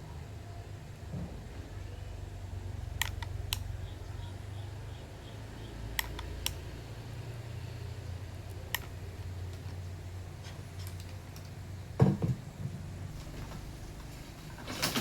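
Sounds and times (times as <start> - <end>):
steady low hum: 0.0 - 15.0
sharp clicks: 3.0 - 4.1, 5.9 - 6.8, 8.4 - 9.8.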